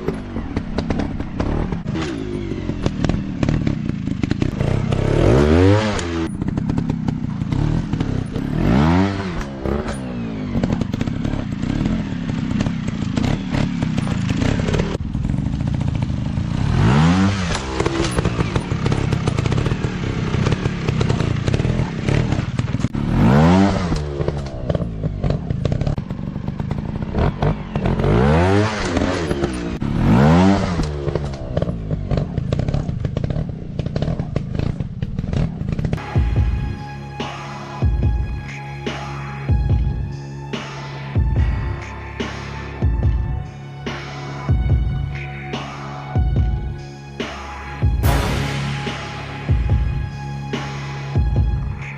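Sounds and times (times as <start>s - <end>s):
dirt bike engines revving: 0.0s - 36.2s.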